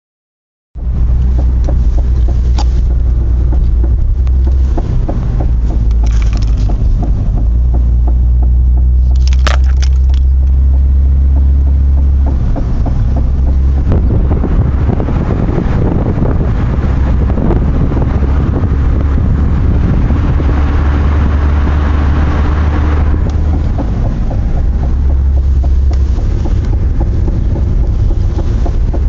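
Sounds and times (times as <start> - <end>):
car rumbling over bumps: 0.7 - 29.0
suspension knocking on bumps: 0.8 - 29.0.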